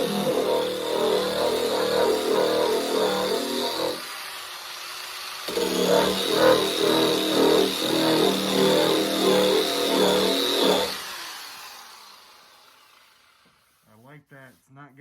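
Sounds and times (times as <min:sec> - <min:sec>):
paint-stripping wheel grinding metal: 0:00.0 - 0:04.6, 0:05.4 - 0:11.9
power tool winding down: 0:00.0 - 0:13.7.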